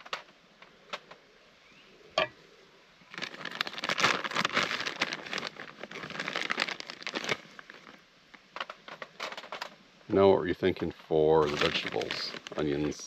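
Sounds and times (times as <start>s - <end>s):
chips crinkling and rustling: 3.1s - 9.8s, 11.4s - 13.0s.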